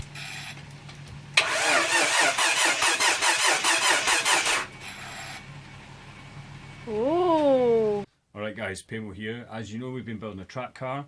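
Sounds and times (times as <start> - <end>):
starter motor cranking engine: 1.4 - 5.5.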